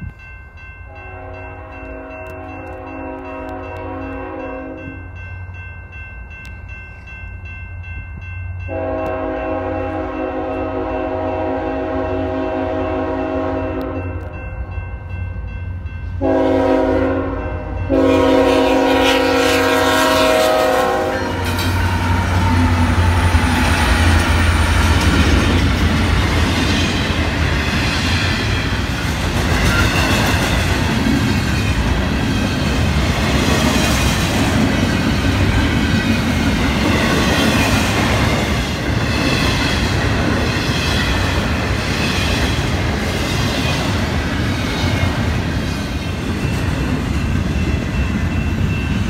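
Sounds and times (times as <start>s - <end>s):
locomotive air horn blasts: 0.9s - 5.0s, 8.7s - 14.3s, 16.2s - 23.1s
train wheels clacking on rails: 17.8s - 49.0s.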